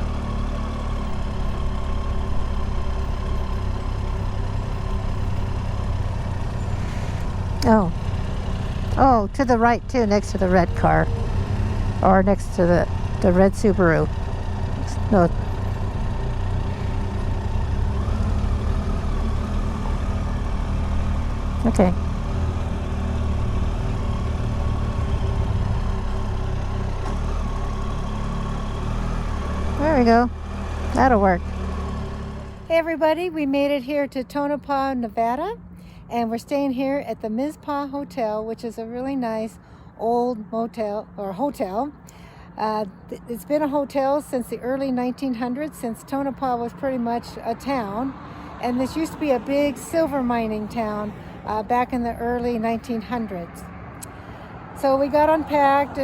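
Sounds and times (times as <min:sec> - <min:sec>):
motorcycle engine at low revs: 0:00.0 - 0:33.2.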